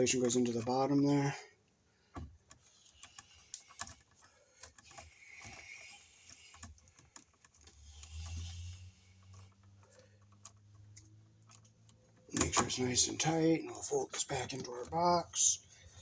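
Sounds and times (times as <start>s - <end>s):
wire nut clicking and rustling: 2.1s - 13.5s.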